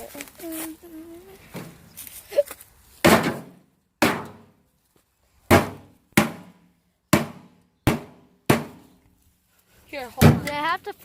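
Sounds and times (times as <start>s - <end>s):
sledgehammer striking metal casing: 3.1s - 4.5s.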